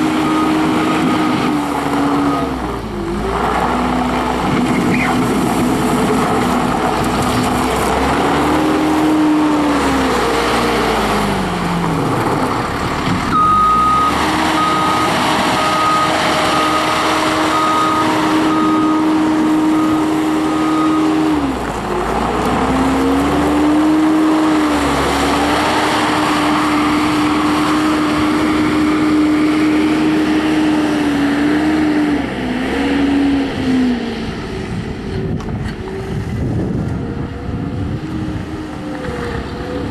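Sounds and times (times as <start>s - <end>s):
diesel engine under load: 0.0s - 39.9s
backup alarm beeps: 13.3s - 19.0s.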